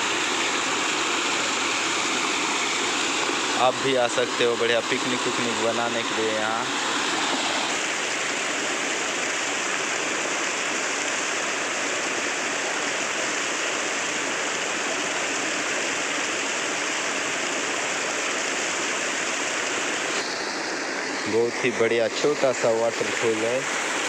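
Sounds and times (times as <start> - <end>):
waterfall rushing and splashing: 0.0 - 24.0.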